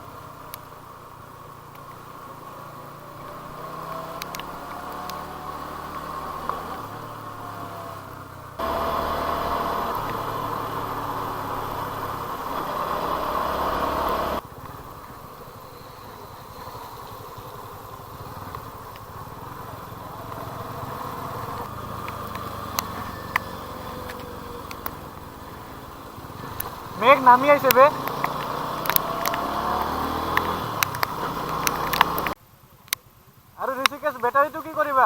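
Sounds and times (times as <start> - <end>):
motorcycle engine running: 0.0 - 35.0
sharp clicks: 4.2 - 5.3, 22.0 - 25.0, 26.4 - 26.8, 27.4 - 33.0, 33.8 - 34.0.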